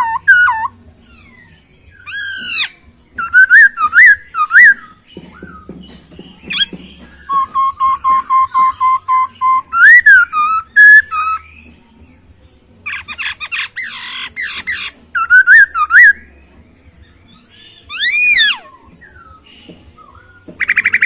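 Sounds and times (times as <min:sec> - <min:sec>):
bird harsh raspy chattering: 0:00.0 - 0:01.4, 0:02.0 - 0:05.6, 0:06.5 - 0:11.4, 0:12.9 - 0:16.2, 0:17.9 - 0:18.8
bird whistling song: 0:00.0 - 0:11.8, 0:12.8 - 0:21.0.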